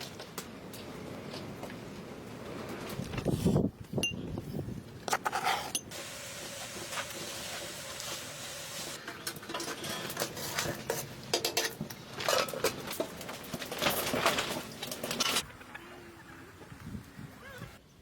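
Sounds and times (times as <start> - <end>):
utensils clattering on dishes: 9.0 - 15.4.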